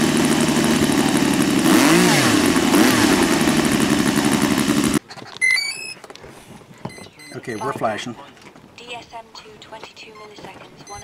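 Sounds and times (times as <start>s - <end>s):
small engine running loud: 0.0s - 5.0s.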